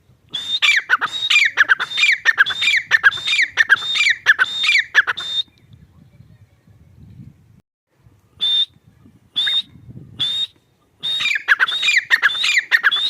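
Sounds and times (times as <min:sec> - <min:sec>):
francolin calling: 0:00.3 - 0:05.6, 0:09.4 - 0:13.0.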